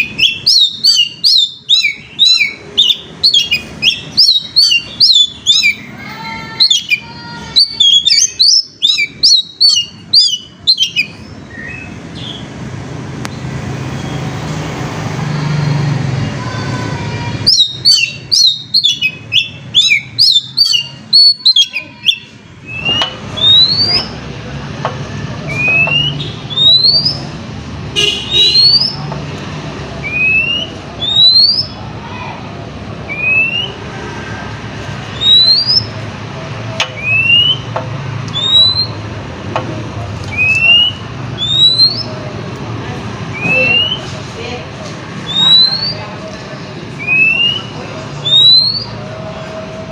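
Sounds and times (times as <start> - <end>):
bird singing rapid chirps: 0.0 - 12.5, 17.2 - 24.3, 25.5 - 27.4, 28.0 - 29.1, 30.0 - 31.8, 35.1 - 36.0, 36.9 - 39.0, 40.3 - 42.2, 43.3 - 44.1, 45.2 - 46.1, 47.0 - 49.0
upward-sliding bird whistles: 22.1 - 24.1, 38.3 - 39.0, 40.3 - 42.1, 45.3 - 46.0.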